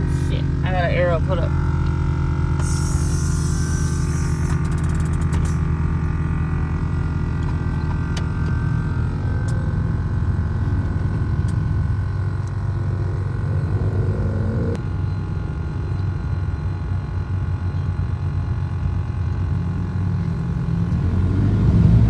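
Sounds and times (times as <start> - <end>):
car engine running: 0.0 - 22.0
rapid clicks: 4.1 - 8.6.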